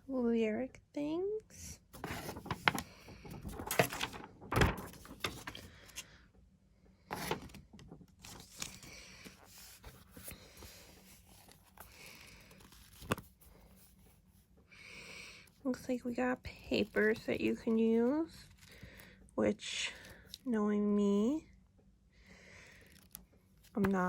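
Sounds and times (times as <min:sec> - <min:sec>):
paper rustling and shuffling: 0:01.9 - 0:06.1, 0:07.1 - 0:14.2, 0:16.5 - 0:19.2, 0:22.8 - 0:24.0.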